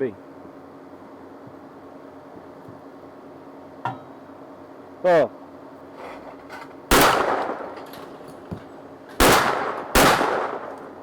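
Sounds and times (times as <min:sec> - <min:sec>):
shotgun shots with echo: 0:06.9 - 0:07.7, 0:09.2 - 0:10.8.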